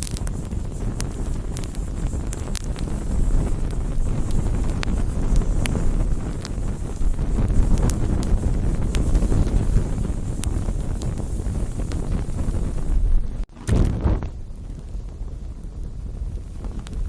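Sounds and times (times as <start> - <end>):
campfire flames rushing: 0.0 - 17.0
fire crackling and popping: 0.0 - 17.0.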